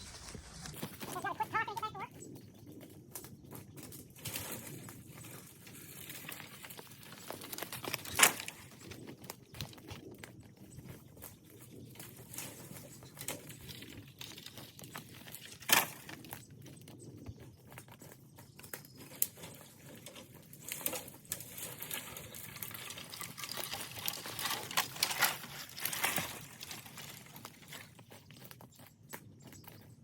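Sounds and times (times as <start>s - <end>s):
crackling and rustling: 0.0s - 30.0s.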